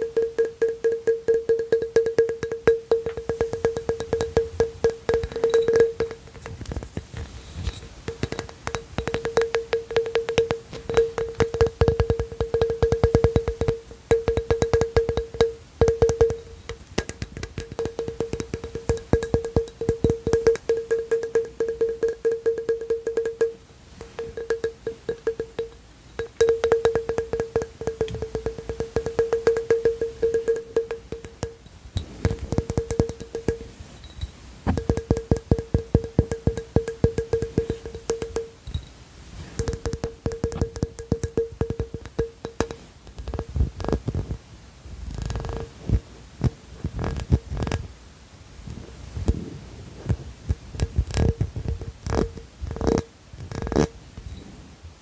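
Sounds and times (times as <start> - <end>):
steady ringing pitch: 0.0 - 6.6, 7.3 - 43.6
rapid tapping on object: 0.0 - 33.7, 34.6 - 38.9, 39.6 - 44.4, 45.1 - 47.8, 50.0 - 53.9.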